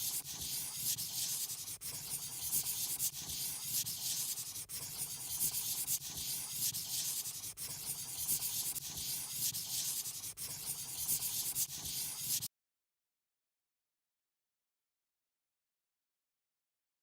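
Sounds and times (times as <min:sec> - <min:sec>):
drawing tool scratching paper: 0:00.0 - 0:12.5.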